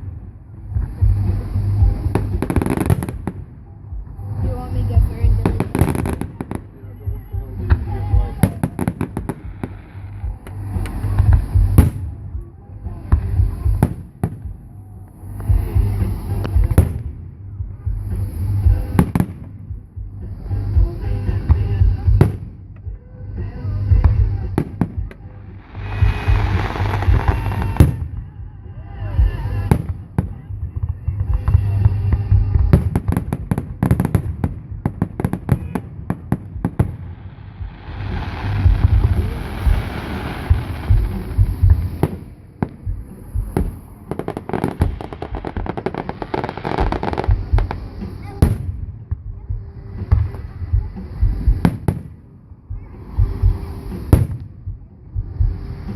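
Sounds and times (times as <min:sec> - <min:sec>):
fireworks bangs: 0:00.0 - 0:17.3, 0:23.8 - 0:28.3, 0:29.3 - 0:49.3, 0:53.0 - 0:54.8
low booming rumble: 0:00.0 - 0:55.9
music: 0:00.0 - 0:55.9.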